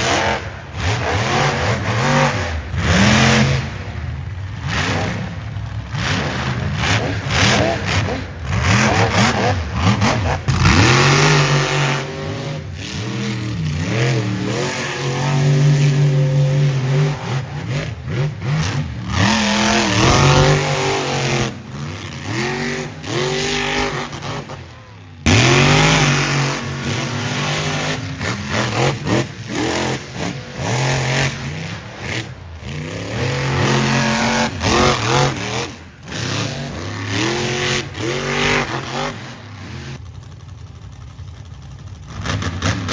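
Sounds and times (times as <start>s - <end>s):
truck engine revving hard: 0.0s - 40.0s.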